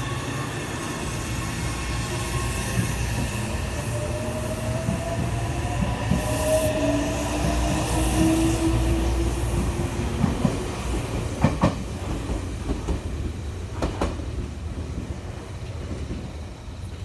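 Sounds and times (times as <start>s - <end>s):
train rumble: 0.0s - 17.0s
train wheels clacking over rail joints: 9.5s - 14.3s.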